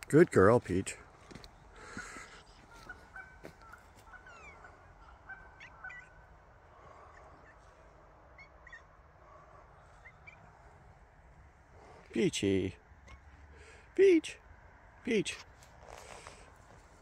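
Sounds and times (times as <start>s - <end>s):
quiet forest ambience: 0.0s - 17.0s.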